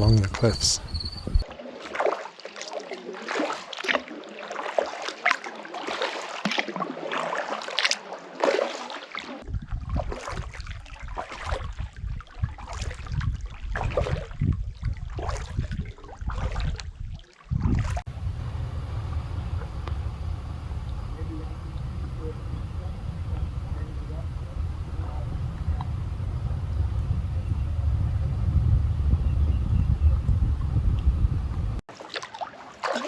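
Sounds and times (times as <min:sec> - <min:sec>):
paddles splashing in water: 0:00.0 - 0:01.4, 0:18.1 - 0:33.0
low rumble: 0:18.1 - 0:31.8
water trickling off paddles: 0:18.1 - 0:31.8.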